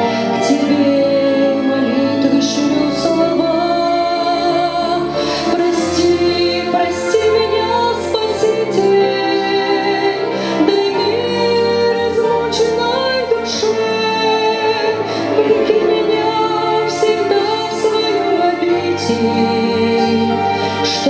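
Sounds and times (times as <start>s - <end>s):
sustained instrumental chords: 0.0s - 21.0s
woman singing: 0.0s - 21.0s.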